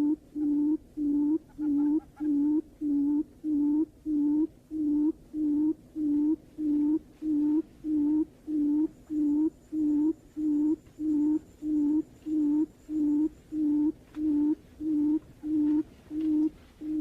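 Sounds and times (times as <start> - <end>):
bird giving low hoots: 0.0 - 17.0.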